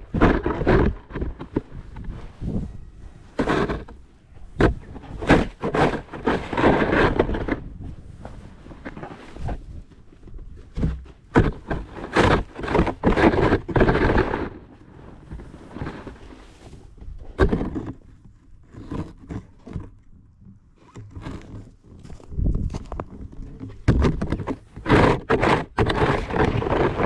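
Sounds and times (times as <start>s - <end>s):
snow shovel scraping: 0.0s - 4.0s, 4.6s - 9.6s, 11.4s - 16.8s, 24.8s - 27.0s.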